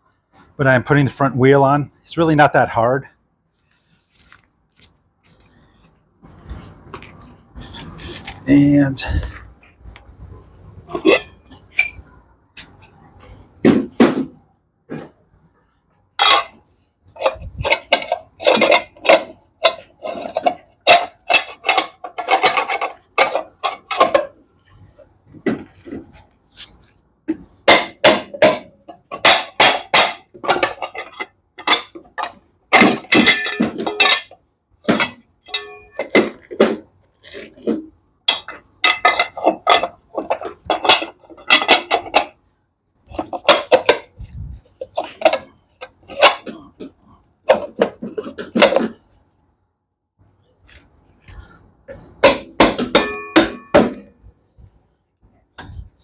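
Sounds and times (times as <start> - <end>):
metal tools clinking and knocking: 10.6 - 15.2, 16.2 - 24.8, 27.3 - 42.4, 43.0 - 49.0, 50.7 - 54.2.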